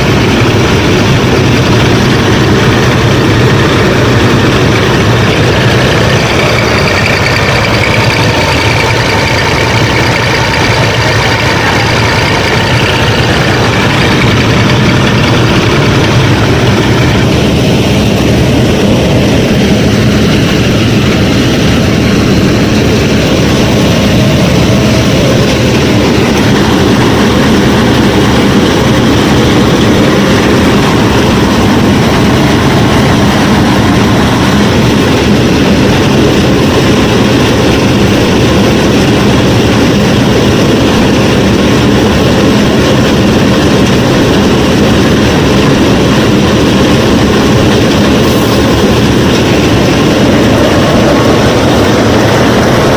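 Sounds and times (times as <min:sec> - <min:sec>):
harvester motor mechanical drone: 0:00.0 - 0:52.9.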